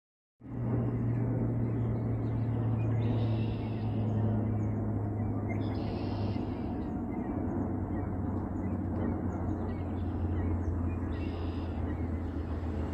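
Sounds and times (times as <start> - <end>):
steady low hum: 0.4 - 12.9.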